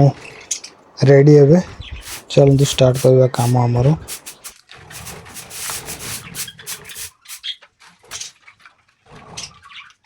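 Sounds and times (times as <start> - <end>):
cement scraping and tapping: 1.9 - 7.4.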